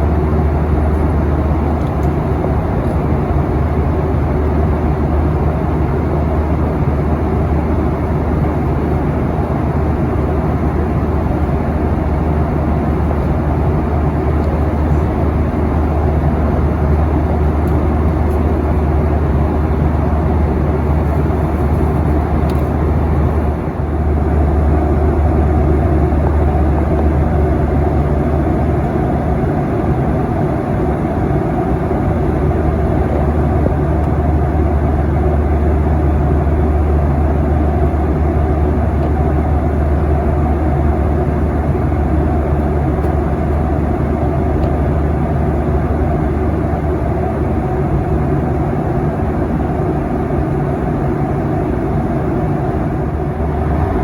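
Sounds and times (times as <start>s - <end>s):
jet engine hum: 0.0s - 54.0s
airflow noise: 8.9s - 38.7s.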